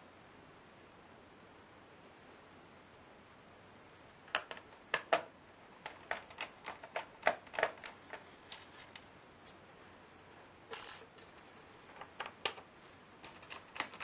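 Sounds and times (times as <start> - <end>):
small hard clicks and taps: 4.3 - 9.1, 11.9 - 14.0
laptop parts and tools handled: 4.3 - 9.6, 10.7 - 14.0.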